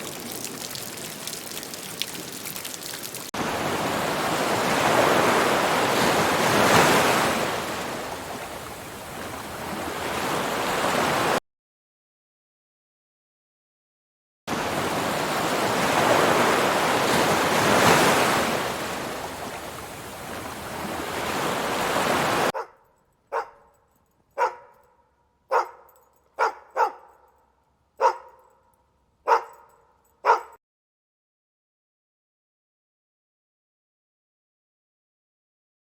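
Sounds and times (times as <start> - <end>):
ocean waves washing in: 0.0 - 11.4, 14.5 - 22.5
dog barking: 22.6 - 23.8, 24.4 - 30.6.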